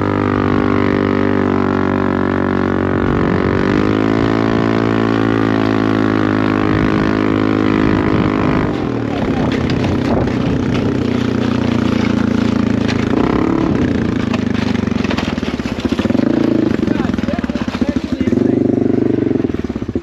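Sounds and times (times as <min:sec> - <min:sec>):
engine droning at high speed: 0:00.0 - 0:20.0.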